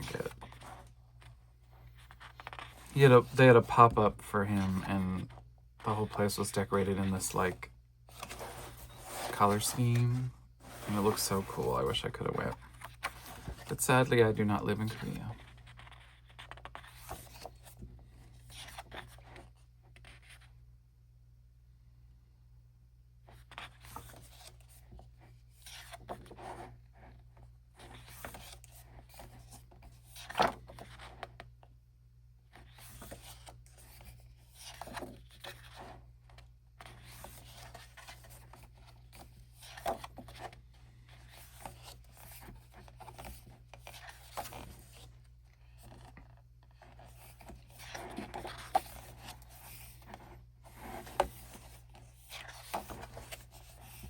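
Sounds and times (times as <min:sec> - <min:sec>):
paper pages rustling: 0:00.0 - 0:20.4, 0:27.8 - 0:31.4, 0:32.5 - 0:54.0.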